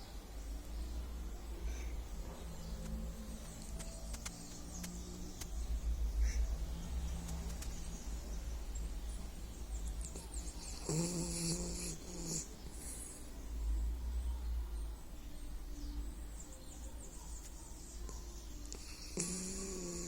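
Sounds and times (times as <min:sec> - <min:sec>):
dog snoring: 0:10.0 - 0:13.2, 0:18.7 - 0:20.0.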